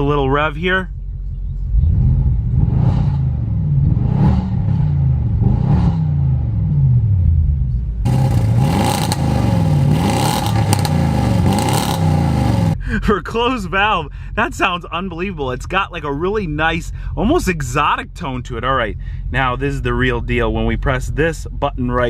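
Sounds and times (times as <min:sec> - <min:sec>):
car engine revving: 0:00.8 - 0:12.8.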